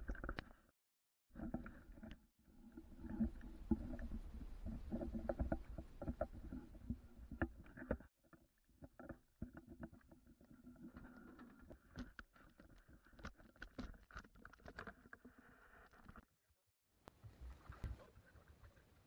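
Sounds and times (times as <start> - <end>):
water splashing and sloshing: 17.1 - 19.0.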